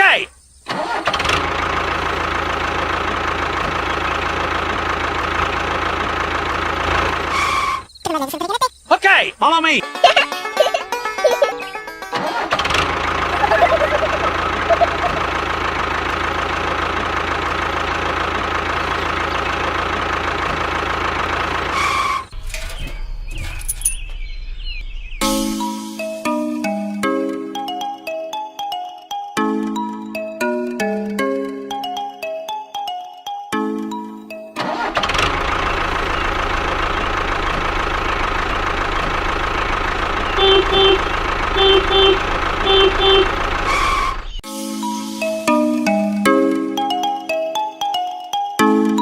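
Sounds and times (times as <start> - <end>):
tractor engine running: 0.4 - 8.0, 10.0 - 25.6, 34.6 - 44.4
horn beeps: 13.3 - 15.3, 40.4 - 44.4
chime melody: 13.4 - 15.2.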